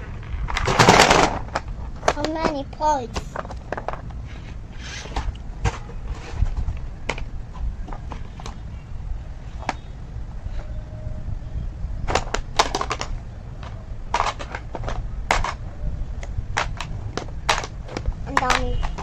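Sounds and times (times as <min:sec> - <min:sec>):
plastic toy parts clattering: 0:12.1 - 0:15.6, 0:16.6 - 0:19.0.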